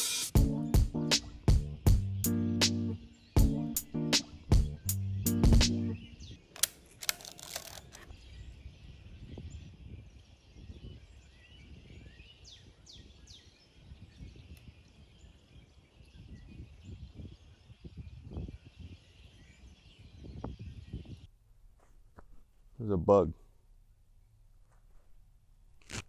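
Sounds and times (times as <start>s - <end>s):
bird chirping: 2.1s - 21.3s
clicks and rustles: 6.5s - 8.2s.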